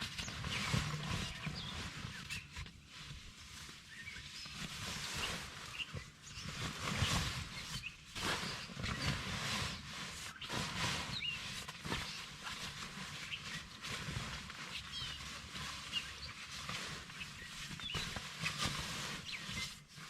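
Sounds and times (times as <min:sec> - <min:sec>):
low rumble: 0:00.4 - 0:02.5
short high chirps: 0:00.6 - 0:02.5.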